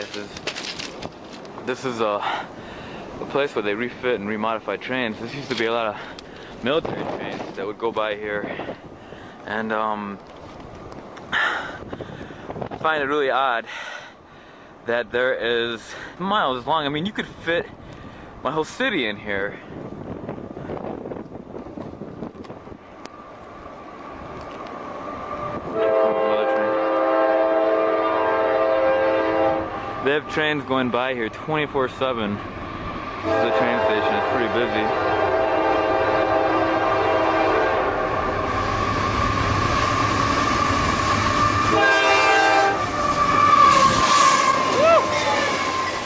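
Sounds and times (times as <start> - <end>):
train rumbling and clicking: 0.0 - 13.7, 14.7 - 46.0
wind buffeting microphone: 2.5 - 13.1, 19.0 - 46.0
locomotive air horn: 25.6 - 30.0, 33.2 - 46.0.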